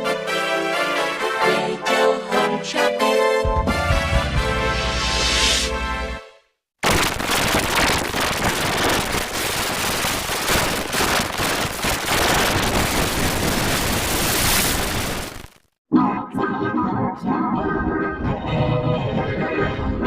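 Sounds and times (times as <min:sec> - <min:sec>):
loud dense crackling noise: 0:06.8 - 0:15.8.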